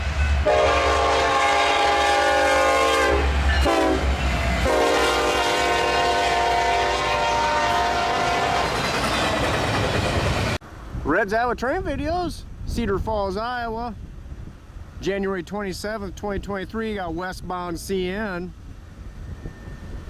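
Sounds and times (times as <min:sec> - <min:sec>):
low rumble of passing train: 0:00.0 - 0:11.2, 0:13.9 - 0:20.0
train air horn blasts: 0:00.4 - 0:08.8.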